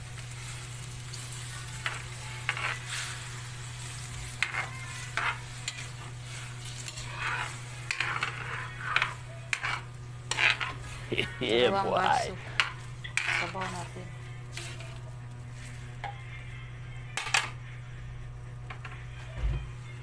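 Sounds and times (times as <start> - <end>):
vegetables sauteing in a pan: 0.0 - 16.0
steady low hum: 0.0 - 20.0
spatula scraping a pan: 0.3 - 11.4, 12.1 - 15.9.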